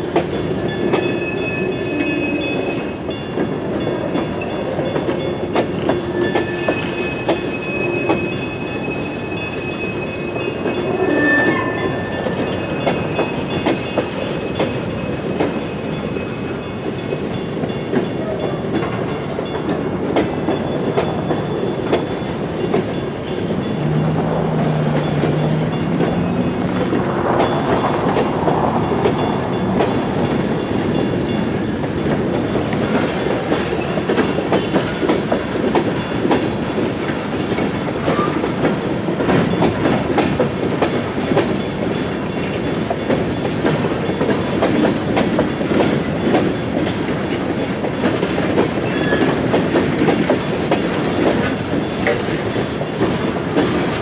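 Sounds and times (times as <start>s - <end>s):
freight train rumbling past: 0.0s - 54.0s
wheel squeals: 5.9s - 16.4s, 48.7s - 49.7s.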